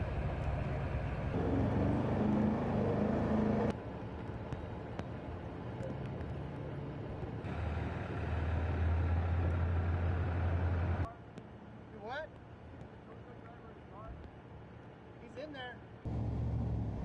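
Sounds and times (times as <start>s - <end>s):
engine rumble: 0.0s - 15.1s, 16.0s - 17.0s
deep engine hum: 16.1s - 17.0s.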